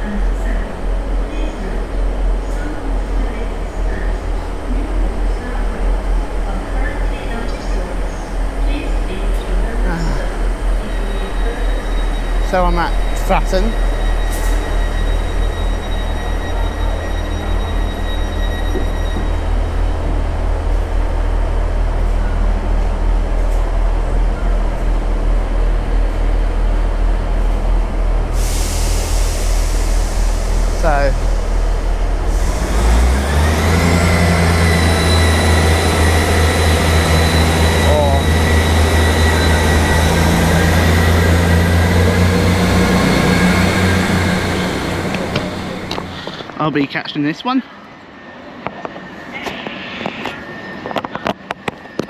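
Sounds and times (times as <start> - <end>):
train rumble: 0.0 - 52.0
thin high whine: 2.4 - 22.3, 27.1 - 46.7.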